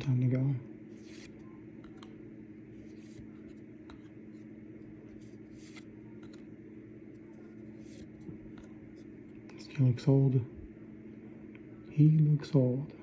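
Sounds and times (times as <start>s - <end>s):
steady low hum: 0.0s - 13.0s
cards swishing and clicking: 0.9s - 2.2s, 2.8s - 6.5s.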